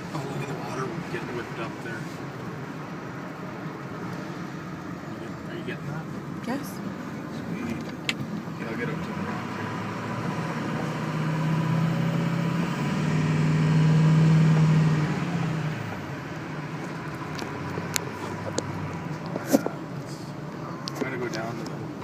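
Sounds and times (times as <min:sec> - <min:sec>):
vehicle passing by: 0:08.6 - 0:20.4.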